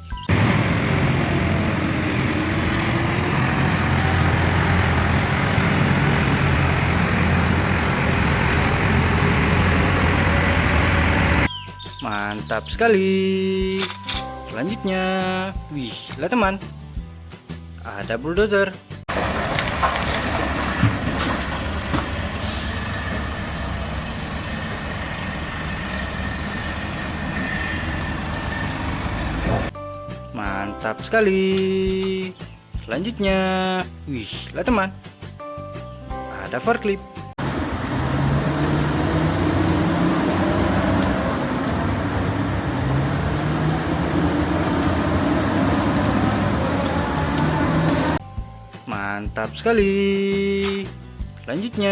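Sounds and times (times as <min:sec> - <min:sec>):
bulldozer running: 0:00.0 - 0:11.6, 0:19.1 - 0:29.8, 0:37.4 - 0:48.2.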